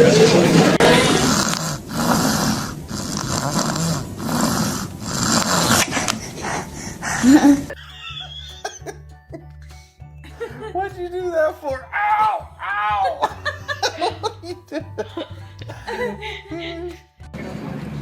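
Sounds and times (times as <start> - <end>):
dog snoring: 0.8 - 7.8.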